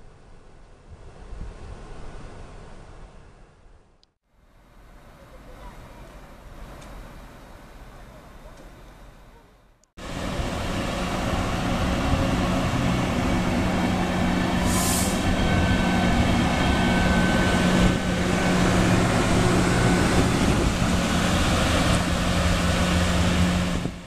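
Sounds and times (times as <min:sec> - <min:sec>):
wheels rumbling on rail: 0:04.6 - 0:24.0
train motor hum: 0:10.0 - 0:24.0.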